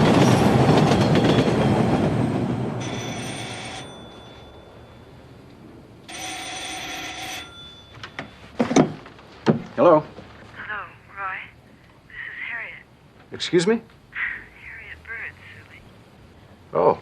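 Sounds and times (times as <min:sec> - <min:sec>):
telephone bell ringing: 0:02.8 - 0:05.4, 0:06.1 - 0:08.6.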